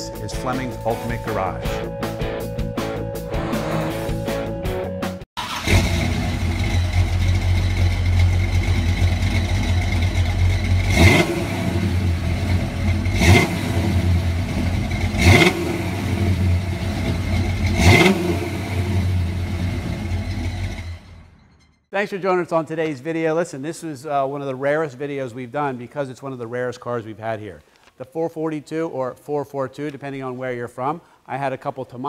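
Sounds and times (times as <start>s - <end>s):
car engine idling and revving: 5.4s - 21.4s.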